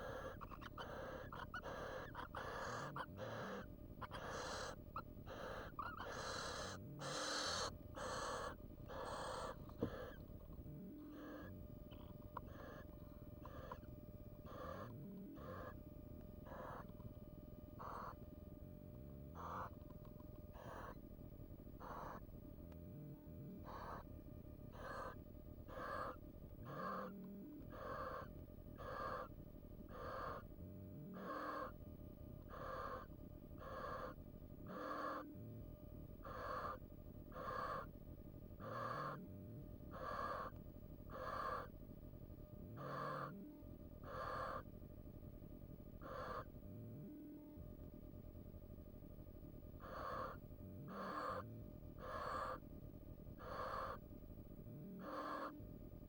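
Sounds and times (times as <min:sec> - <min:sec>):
barn owl rasping calls: 0:00.0 - 0:15.8, 0:16.4 - 0:17.0, 0:17.7 - 0:18.2, 0:19.3 - 0:19.9, 0:20.5 - 0:21.0, 0:21.7 - 0:22.4, 0:23.6 - 0:24.1, 0:24.7 - 0:31.8, 0:32.4 - 0:35.4, 0:36.2 - 0:41.8, 0:42.7 - 0:44.8, 0:45.8 - 0:47.4, 0:49.8 - 0:52.7, 0:53.3 - 0:54.2, 0:54.8 - 0:55.6.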